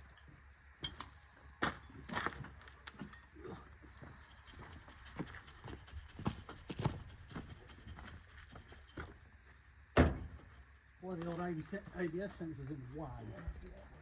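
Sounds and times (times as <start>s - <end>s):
metal tools knocking and clinking: 0.0s - 2.0s, 2.7s - 3.3s.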